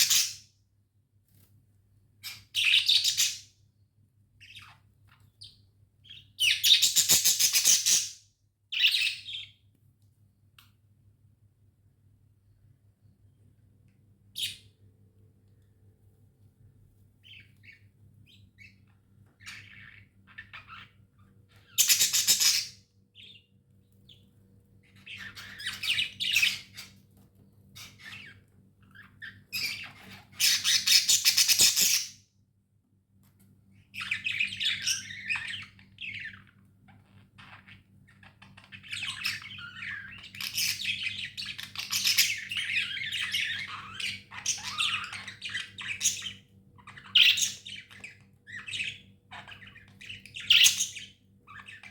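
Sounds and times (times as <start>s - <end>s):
budgerigars chirping and chattering: 0.0s - 0.5s, 2.2s - 3.5s, 4.4s - 9.6s, 17.2s - 24.2s, 24.8s - 27.0s, 27.7s - 32.2s, 33.8s - 51.9s
faint steady hum: 0.0s - 31.5s.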